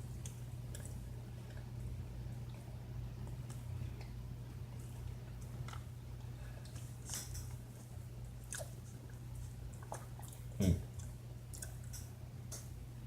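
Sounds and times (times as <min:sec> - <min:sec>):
steady low hum: 0:00.0 - 0:13.0
person chewing: 0:08.4 - 0:09.2.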